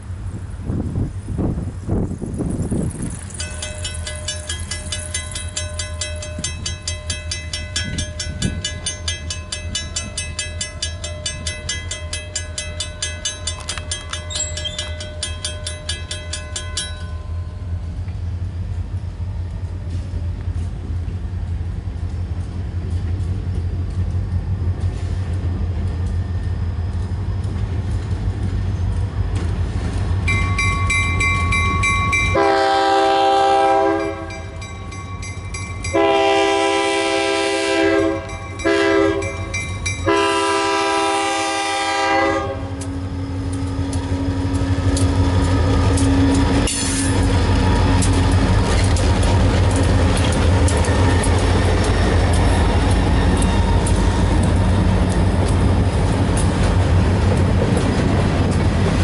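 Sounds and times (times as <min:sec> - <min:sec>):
diesel locomotives rumbling: 0:00.0 - 0:59.0
railroad crossing bell ringing: 0:02.8 - 0:20.0, 0:30.2 - 0:57.2
locomotive horn: 0:32.3 - 0:34.6, 0:35.9 - 0:44.7.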